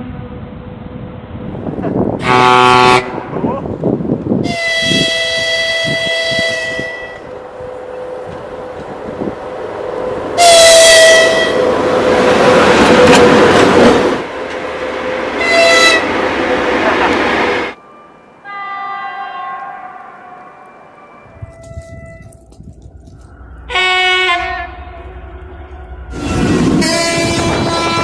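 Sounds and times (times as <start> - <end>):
train rolling past: 0.0 - 28.0
locomotive air horn blasts: 2.2 - 3.3, 4.4 - 8.3, 10.4 - 11.8, 15.4 - 16.1, 18.4 - 22.4, 23.6 - 28.0.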